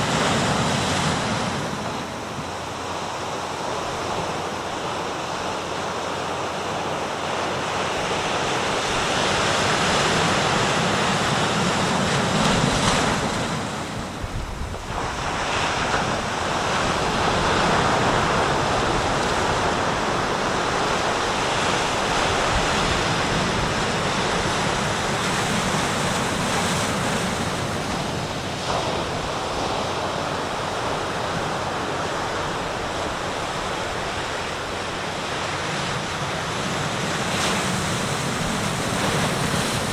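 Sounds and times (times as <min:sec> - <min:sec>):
sea surf breaking on shore: 0:00.0 - 0:39.9.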